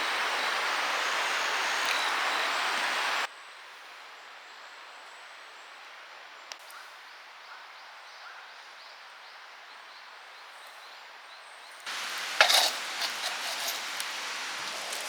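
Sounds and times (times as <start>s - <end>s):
campfire crackling and hissing: 0.0s - 3.3s, 11.8s - 15.0s
faint chirping: 11.8s - 15.0s
fire pops: 11.9s - 15.0s.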